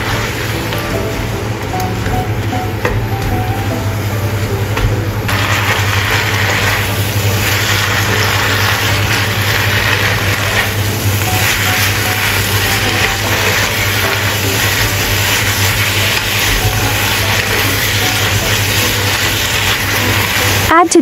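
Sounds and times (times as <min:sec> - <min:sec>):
leaves sizzling in a wok: 0:00.0 - 0:02.0, 0:03.1 - 0:21.0
wooden spatula tossing food: 0:04.5 - 0:20.8.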